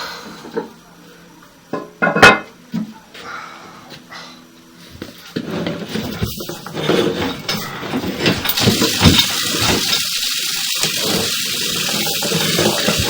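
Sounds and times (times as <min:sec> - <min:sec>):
knocks and clatter: 0:05.3 - 0:13.0
water running: 0:06.3 - 0:13.0.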